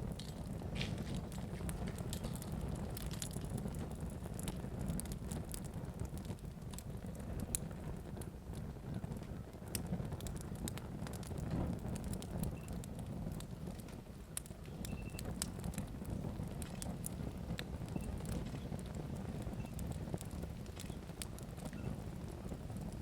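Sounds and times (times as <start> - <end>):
fire crackling and popping: 0.0 - 23.0
fire rumbling: 0.0 - 23.0.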